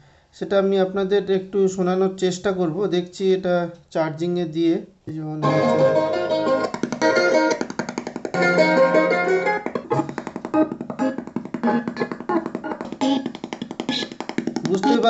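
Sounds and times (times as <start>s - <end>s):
song with plucked guitar stuttering: 5.4s - 15.0s.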